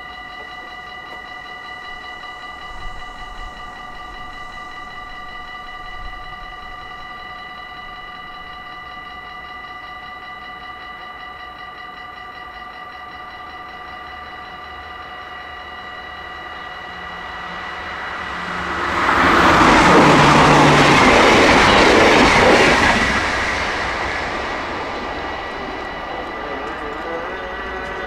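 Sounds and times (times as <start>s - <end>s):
crossing warning bells ringing: 0.0s - 28.0s
train rumbling over rails: 1.8s - 9.2s, 14.3s - 28.0s.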